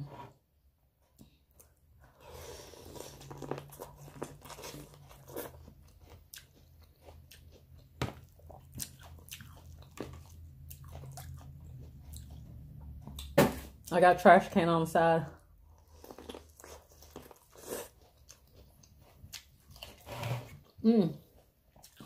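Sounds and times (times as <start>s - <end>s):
chewing and biting food: 2.8s - 13.4s, 15.8s - 20.8s, 21.4s - 22.0s.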